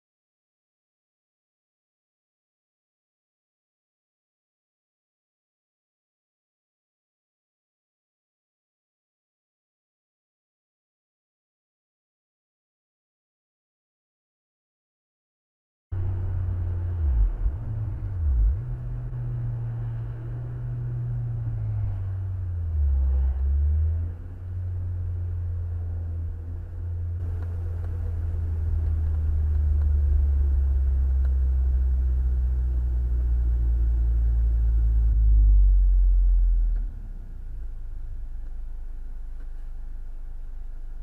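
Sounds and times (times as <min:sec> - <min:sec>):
car driving rumble: 0:15.9 - 0:41.0.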